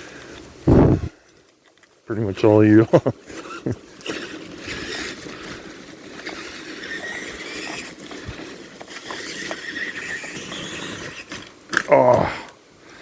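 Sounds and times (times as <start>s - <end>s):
tyres rustling through twigs: 0.0s - 13.0s
toy truck motor whine: 3.3s - 11.5s.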